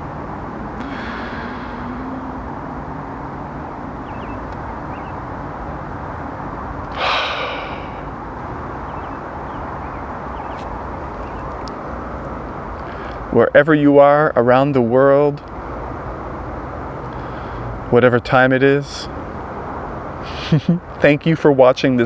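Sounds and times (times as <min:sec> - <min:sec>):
breathy rush: 0:00.0 - 0:03.0, 0:06.9 - 0:08.2
distant road traffic: 0:00.0 - 0:22.0.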